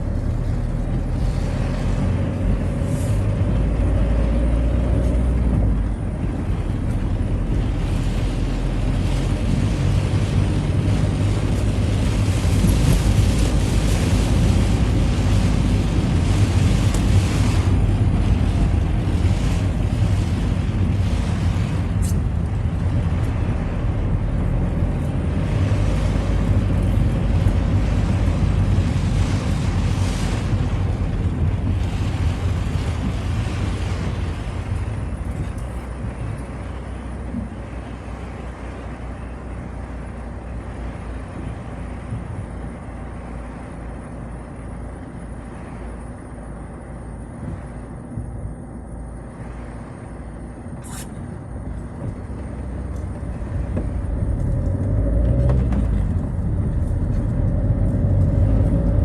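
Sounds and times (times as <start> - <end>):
tyres hissing on wet road: 0.0 - 47.2
car engine drone: 0.0 - 59.0.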